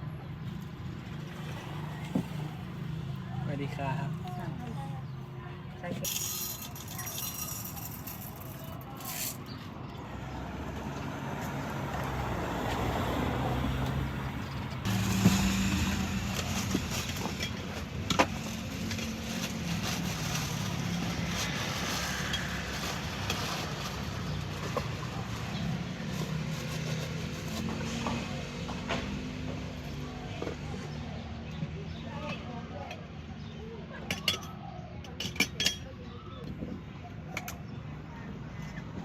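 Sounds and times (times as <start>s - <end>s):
vehicle engine humming: 7.7s - 30.8s.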